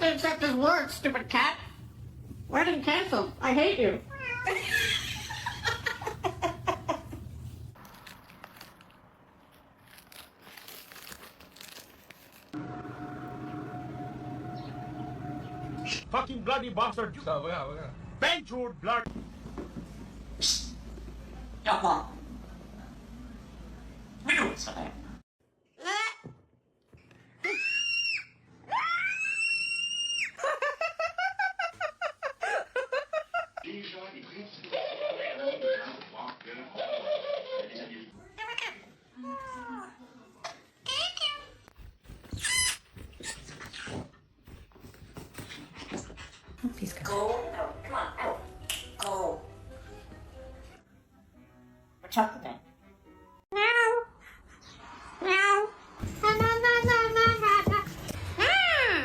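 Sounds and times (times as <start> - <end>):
low hum: 12.6 - 16.2.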